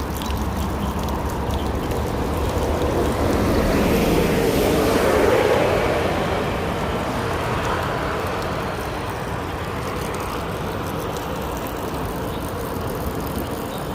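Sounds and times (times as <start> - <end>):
road traffic rumble: 0.0 - 13.9.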